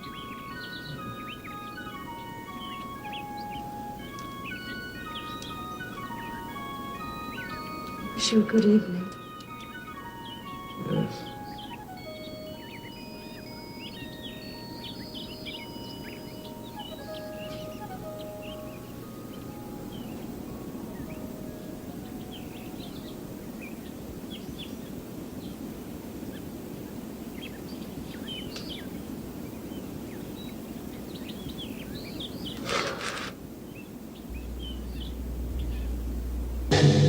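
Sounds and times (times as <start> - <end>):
small birds chirping: 0.0 - 36.7
low rumble: 34.3 - 37.0.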